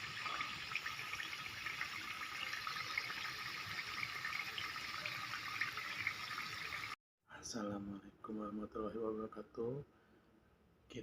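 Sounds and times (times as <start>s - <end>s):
sauce and eggs sizzling in a pan: 0.0s - 7.0s.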